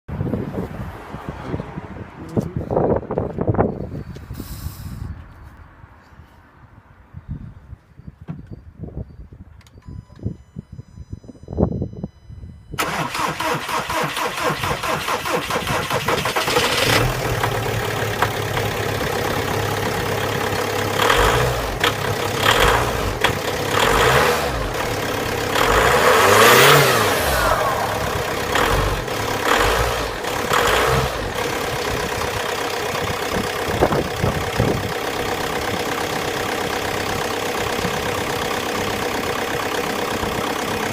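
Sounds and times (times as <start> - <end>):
diesel engine revving and idling: 12.8 - 40.9.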